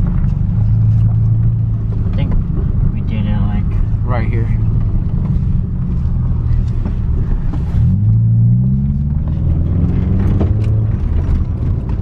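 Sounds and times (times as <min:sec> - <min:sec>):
loud car engine revving: 0:07.6 - 0:12.0.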